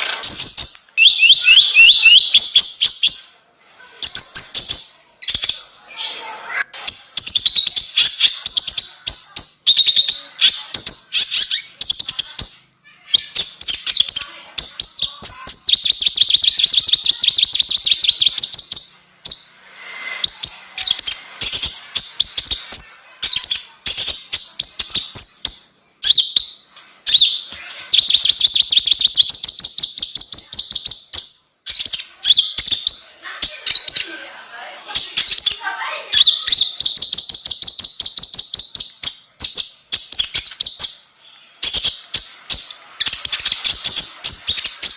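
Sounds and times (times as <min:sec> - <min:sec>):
bird chattering: 0:00.0 - 0:03.3, 0:20.2 - 0:34.3
bird fast trills: 0:00.2 - 0:02.8.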